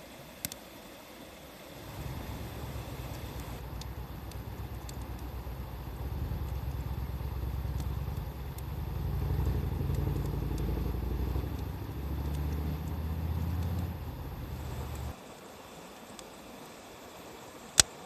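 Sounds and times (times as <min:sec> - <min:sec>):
wood fire crackling: 0:01.6 - 0:15.2.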